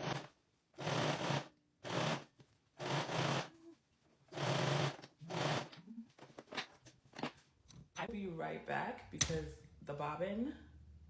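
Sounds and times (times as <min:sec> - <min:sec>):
sewing machine stitching: 0:00.0 - 0:03.5, 0:04.3 - 0:05.8.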